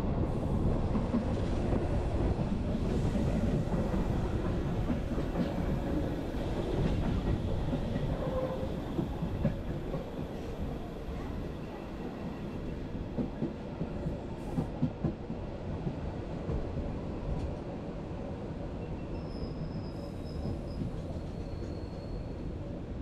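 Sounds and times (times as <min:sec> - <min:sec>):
train wheels rumbling on rail: 0:00.0 - 0:23.0
faint high squeal: 0:18.8 - 0:22.6.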